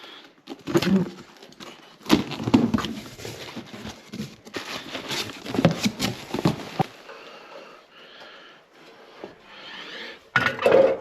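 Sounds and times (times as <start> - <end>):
objects being handled: 0.3 - 7.1.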